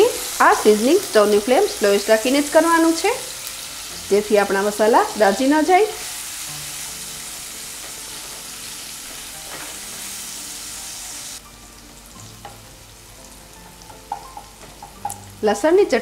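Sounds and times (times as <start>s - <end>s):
paste sizzling in oil: 0.0s - 15.5s
spatula knocks: 13.9s - 15.3s.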